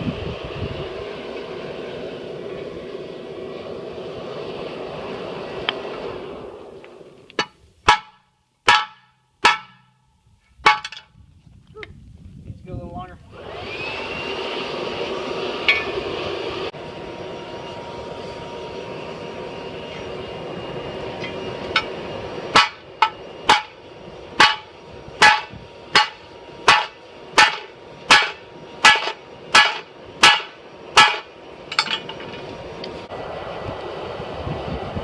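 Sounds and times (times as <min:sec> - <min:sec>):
blower rushing air into forge: 0:00.0 - 0:07.4, 0:12.7 - 0:35.0
hammer striking metal: 0:07.4 - 0:11.1, 0:22.5 - 0:23.8, 0:24.4 - 0:32.4.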